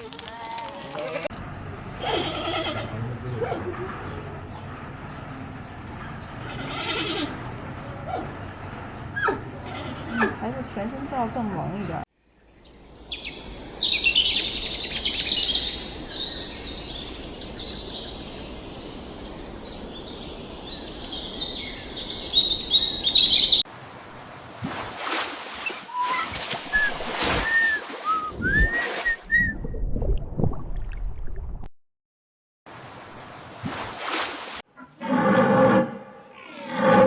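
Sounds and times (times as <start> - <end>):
birds chirping and singing: 12.5 - 23.6
short whistled calls: 25.6 - 29.6.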